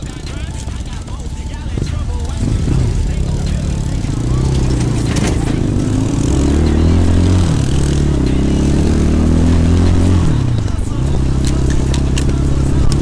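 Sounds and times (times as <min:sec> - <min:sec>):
motorcycle engine running under load: 0:00.0 - 0:13.0.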